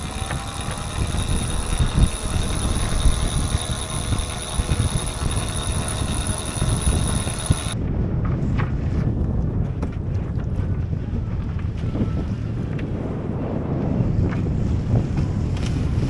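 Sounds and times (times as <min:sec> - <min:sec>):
winch motor whine: 0:00.0 - 0:07.8
wind noise on microphone: 0:00.0 - 0:16.0.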